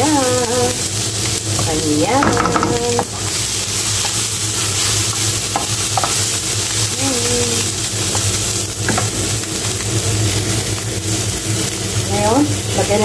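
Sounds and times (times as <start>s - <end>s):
vegetables sizzling in oil: 0.0s - 13.0s
wooden spatula knocking a pan: 1.6s - 3.3s, 5.5s - 6.2s, 8.8s - 9.2s.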